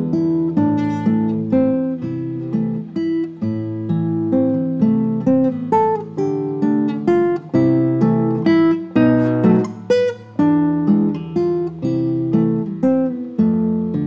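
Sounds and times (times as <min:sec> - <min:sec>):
acoustic guitar melody: 0:00.0 - 0:14.0.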